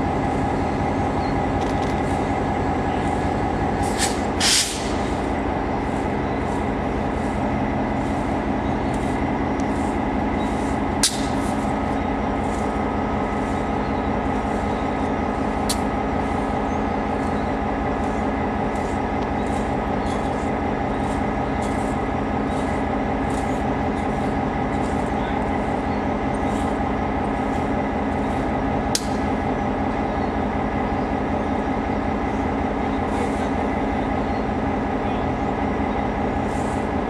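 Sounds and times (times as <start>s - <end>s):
diesel locomotive engine running: 0.0s - 37.0s
air hiss: 3.8s - 5.1s.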